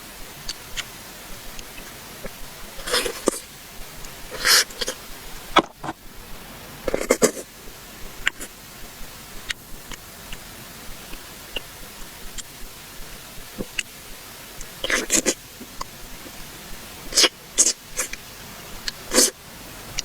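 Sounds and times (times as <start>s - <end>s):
chewing and mouth noises: 0.3s - 6.0s, 9.4s - 13.9s, 14.5s - 16.4s, 17.0s - 19.4s
wet smack or slurp: 19.1s - 19.4s.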